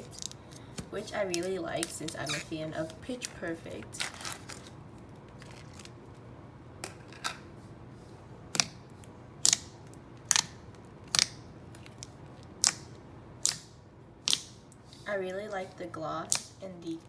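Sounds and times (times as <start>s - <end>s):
slime clicking: 9.4s - 14.6s.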